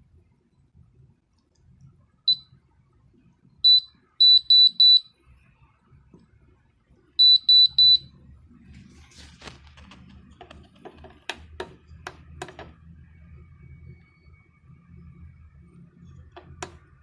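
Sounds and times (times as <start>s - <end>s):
high buzzer beeping: 3.7s - 5.1s, 7.2s - 8.1s.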